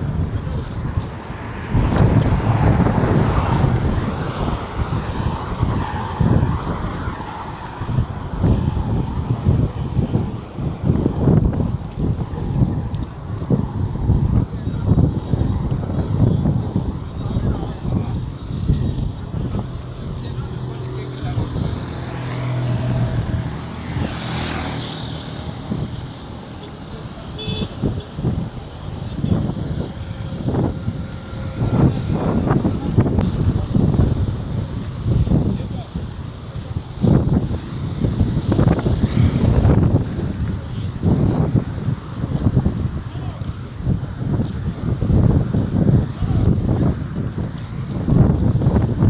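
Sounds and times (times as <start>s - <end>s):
tyre and wind noise: 0.0s - 49.0s
vehicle engine passing by: 0.0s - 49.0s
vehicle driving past: 20.3s - 26.4s.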